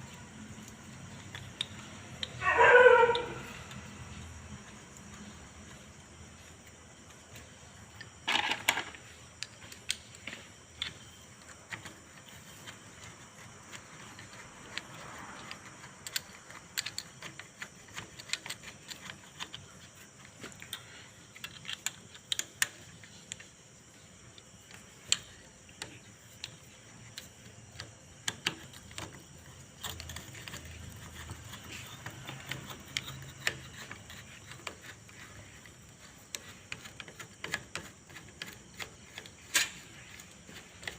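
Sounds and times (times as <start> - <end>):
metallic clicks of hand tools: 29.8 - 34.9.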